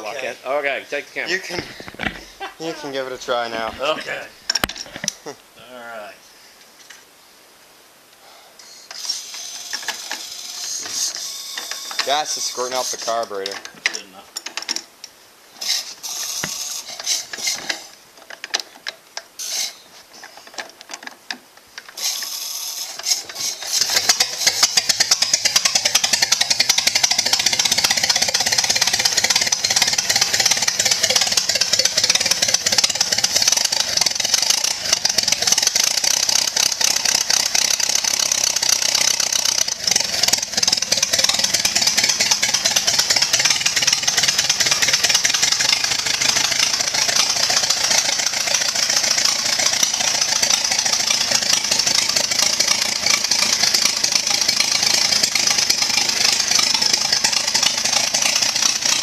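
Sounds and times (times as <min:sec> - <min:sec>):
engine hand-crank clanks: 0:04.5 - 0:05.2, 0:09.6 - 0:14.9, 0:15.6 - 0:59.0
car engine running: 0:23.0 - 0:59.0.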